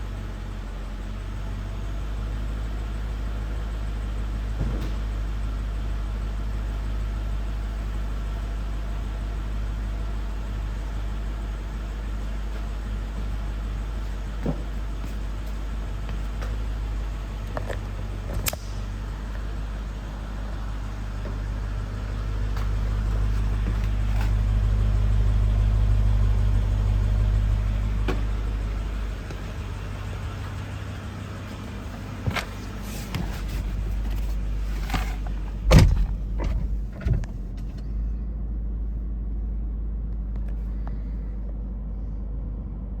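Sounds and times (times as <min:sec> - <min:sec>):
car engine idling: 0:00.0 - 0:43.0
sharp thump: 0:35.6 - 0:37.3.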